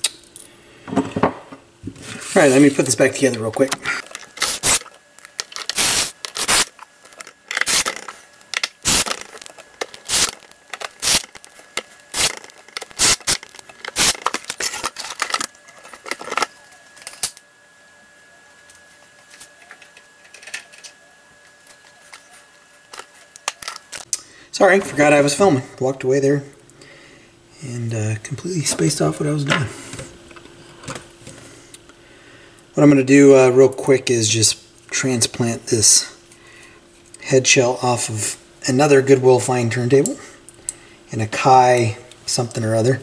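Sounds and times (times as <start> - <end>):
clicks and scrapes of small parts: 3.3 - 17.4, 19.3 - 21.0, 22.9 - 24.1.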